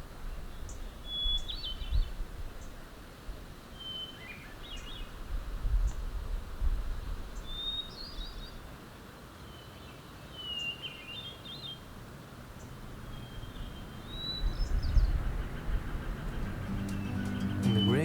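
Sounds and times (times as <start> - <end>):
songbird whistling phrases: 16.6 - 18.0.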